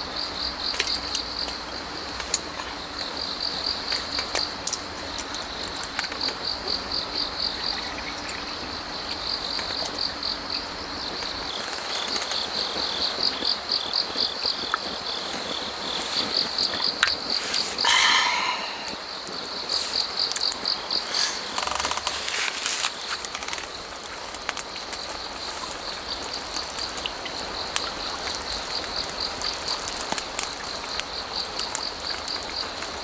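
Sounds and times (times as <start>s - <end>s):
crickets chirping: 0.0s - 33.0s
flowing stream: 15.0s - 33.0s.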